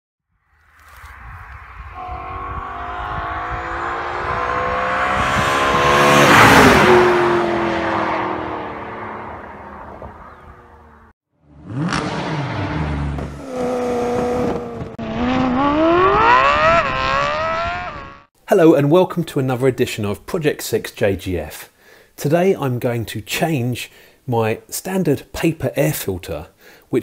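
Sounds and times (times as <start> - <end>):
car passing at speed: 0.5 - 18.2
car engine revving: 1.4 - 18.3.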